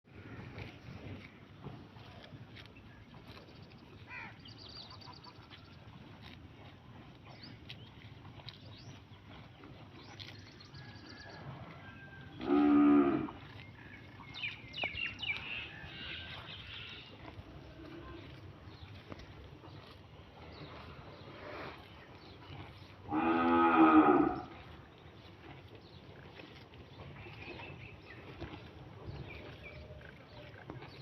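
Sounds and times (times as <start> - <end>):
cow mooing: 11.8 - 13.4, 23.0 - 24.6
birds chirping faintly: 11.9 - 26.2.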